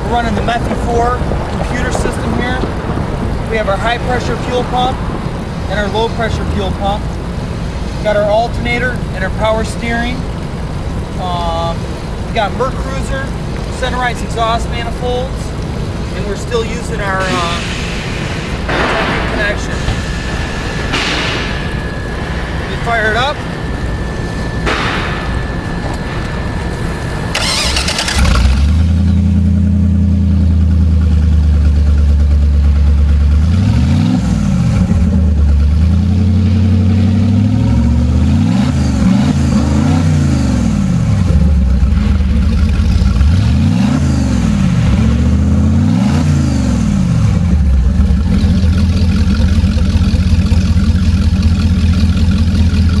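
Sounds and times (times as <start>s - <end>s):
engine starting and revving: 27.3s - 29.6s.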